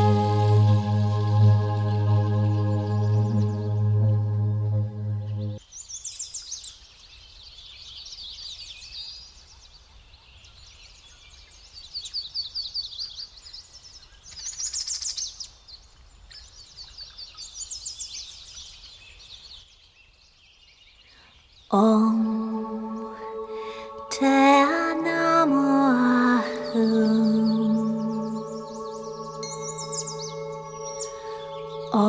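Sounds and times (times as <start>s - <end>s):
songbirds chirping trills: 21.7s - 32.0s.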